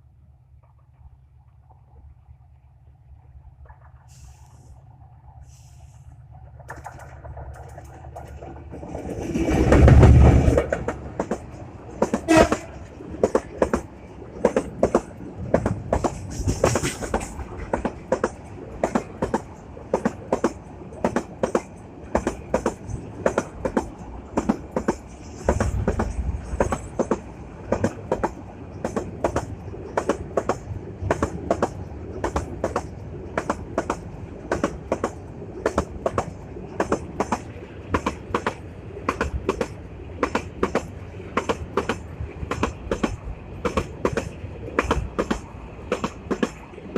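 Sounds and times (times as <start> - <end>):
train wheels clicking on rail joints: 2.9 - 46.9
train rushing past: 3.7 - 46.9
train horn: 12.1 - 12.9.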